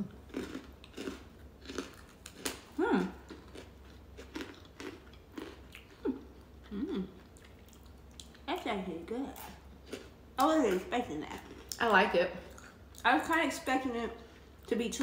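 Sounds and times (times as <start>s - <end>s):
crunching and chewing: 0.0s - 8.5s, 9.4s - 13.1s
person humming: 2.8s - 3.2s, 6.0s - 7.2s.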